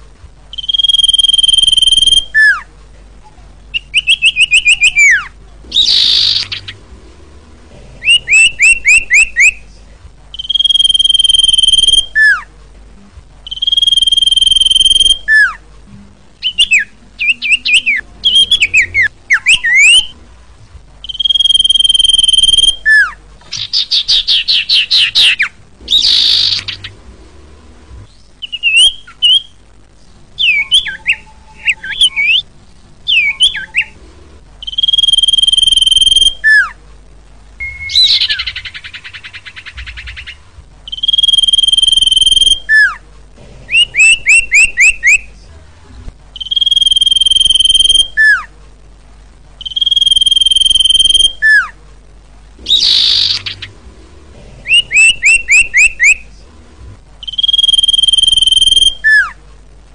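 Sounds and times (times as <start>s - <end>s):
bird whistling: 0.5s - 2.7s, 3.7s - 6.8s, 8.0s - 9.6s, 10.3s - 12.5s, 13.4s - 15.6s, 16.4s - 20.2s, 21.0s - 27.0s, 28.4s - 29.6s, 30.4s - 32.5s, 33.1s - 34.0s, 34.6s - 36.8s, 37.6s - 43.0s, 43.7s - 45.3s, 46.4s - 48.5s, 49.6s - 51.7s, 52.6s - 53.7s, 54.7s - 56.2s, 57.2s - 59.4s.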